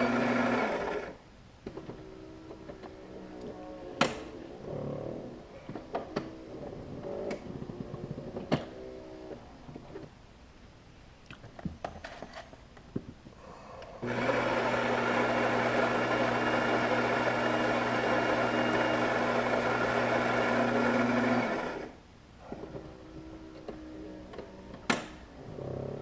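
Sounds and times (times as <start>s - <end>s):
coffee grinder grinding beans: 0.0s - 1.2s, 14.0s - 22.0s.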